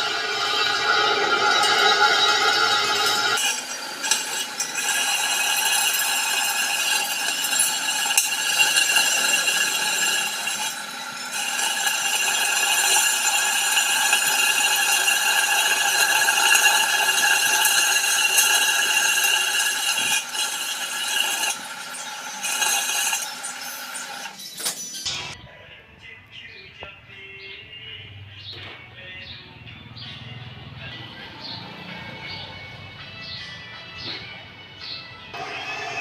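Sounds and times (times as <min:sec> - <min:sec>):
metalworking machinery whining: 0:00.0 - 0:25.4, 0:35.2 - 0:36.0.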